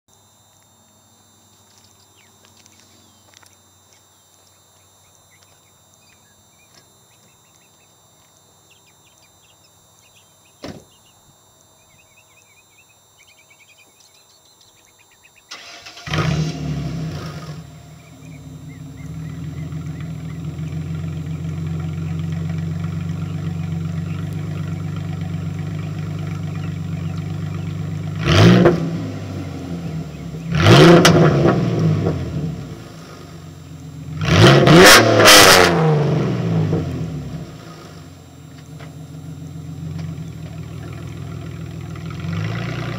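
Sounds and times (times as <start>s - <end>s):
bird chirps: 1.7s - 15.6s, 17.8s - 22.4s, 23.0s - 25.1s, 25.7s - 27.9s, 29.3s - 30.6s
engine revving blips: 11.8s - 42.9s
car engine starting and idling: 15.5s - 42.9s.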